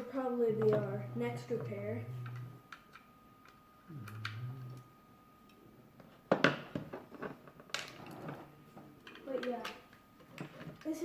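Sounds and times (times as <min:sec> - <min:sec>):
low hummed voice: 0:00.0 - 0:02.6, 0:03.9 - 0:04.9.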